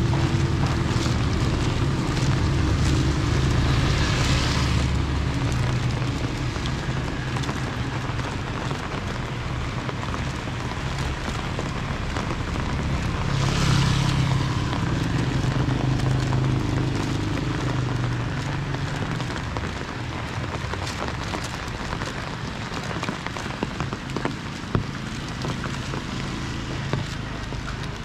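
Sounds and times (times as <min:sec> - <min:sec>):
steady rain falling: 0:00.0 - 0:28.0
passing vehicle engine hum: 0:12.4 - 0:19.3.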